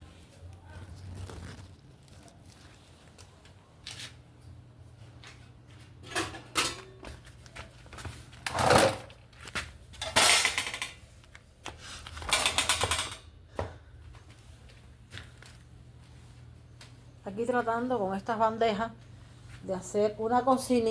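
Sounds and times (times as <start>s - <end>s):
metal trays clattering: 6.0s - 7.0s, 8.5s - 9.2s, 10.0s - 11.0s, 12.2s - 13.3s.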